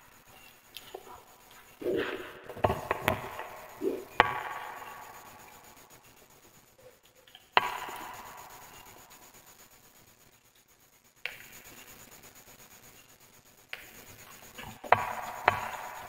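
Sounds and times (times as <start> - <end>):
burning logs popping: 0.6 - 6.3.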